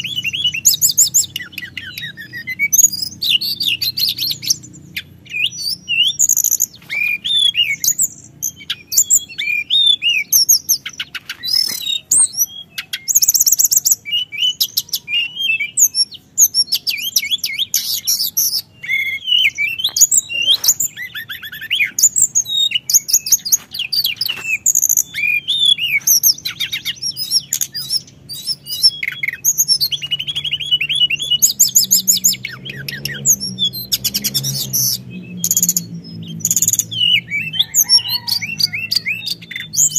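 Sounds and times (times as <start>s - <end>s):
songbird chirping and trilling: 0.0s - 39.9s.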